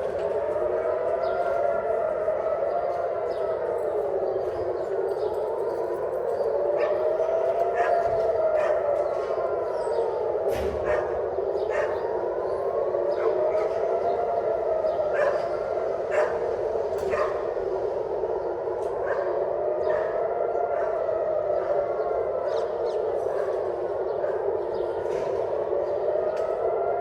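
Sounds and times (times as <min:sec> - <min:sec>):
air-raid siren wailing: 0:00.0 - 0:27.0
dog barking: 0:10.8 - 0:12.1, 0:15.1 - 0:15.5, 0:16.1 - 0:17.5, 0:19.0 - 0:20.2.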